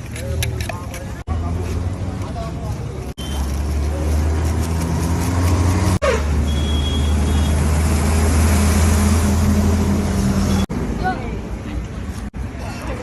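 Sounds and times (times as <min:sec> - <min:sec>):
road traffic drone: 0:00.0 - 0:13.0
motor vehicle running close by: 0:03.3 - 0:10.6.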